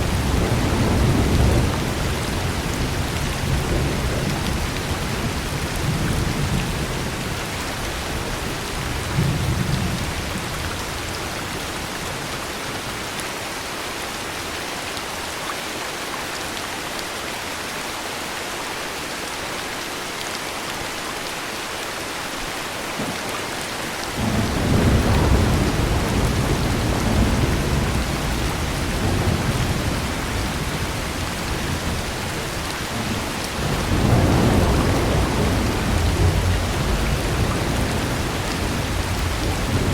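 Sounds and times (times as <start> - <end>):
thunder rumbling: 0.0 - 7.2, 24.2 - 39.9
heavy rain falling: 0.0 - 39.9.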